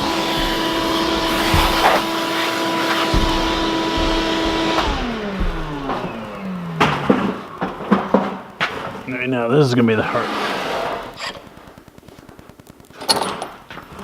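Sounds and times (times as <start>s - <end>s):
debris knocking in vacuum nozzle: 0.0s - 8.5s
vacuum cleaner running: 0.0s - 9.0s.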